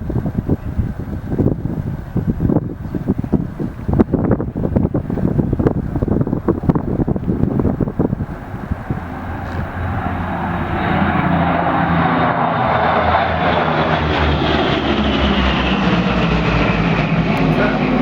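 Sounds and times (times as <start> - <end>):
propeller plane engines droning: 0.0 - 18.0.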